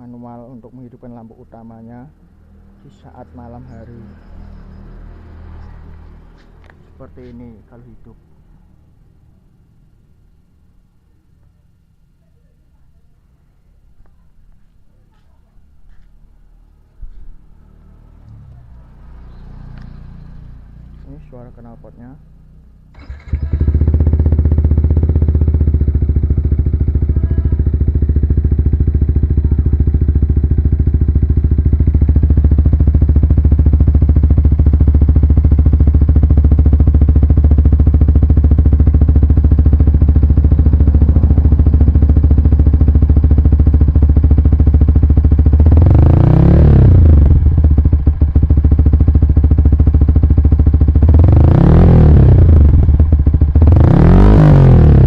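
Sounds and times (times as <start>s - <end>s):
motorcycle engine idling and revving: 0.0s - 10.0s, 15.1s - 55.0s.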